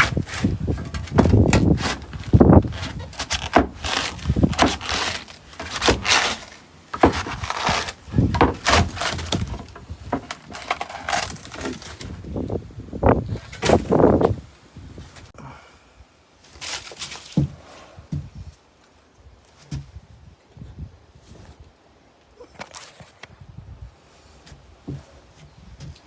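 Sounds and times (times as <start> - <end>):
wood cracking and splintering: 0.0 - 14.3.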